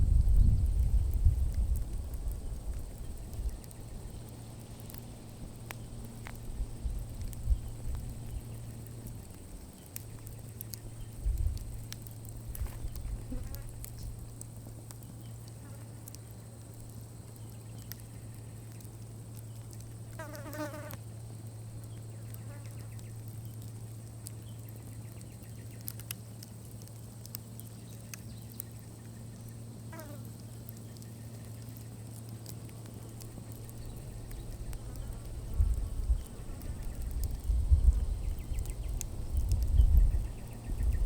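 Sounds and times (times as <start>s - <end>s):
campfire embers crackling: 0.0s - 41.0s.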